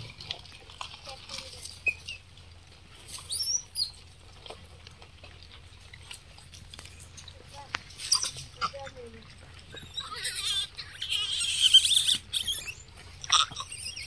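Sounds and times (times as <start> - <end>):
light taps and rustles: 4.3 - 9.0
high bird chirp: 9.8 - 14.0.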